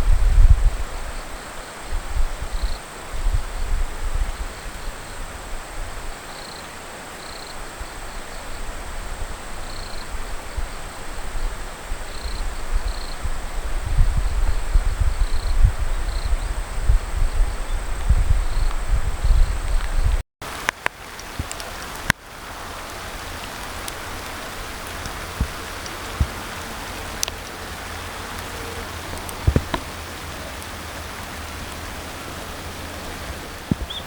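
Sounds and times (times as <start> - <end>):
wind gusting on microphone: 0.0 - 34.0
small bird chirping: 24.9 - 34.0.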